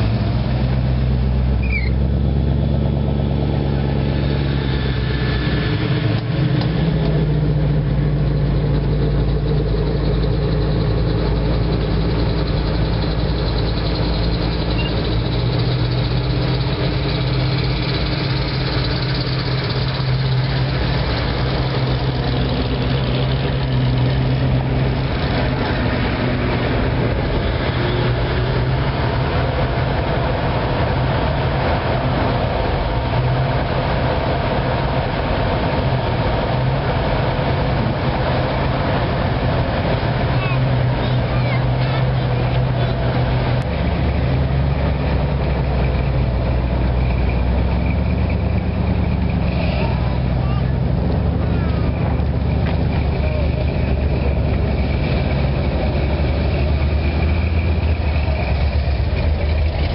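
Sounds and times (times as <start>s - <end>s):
cars driving slowly past: 0.0s - 59.9s.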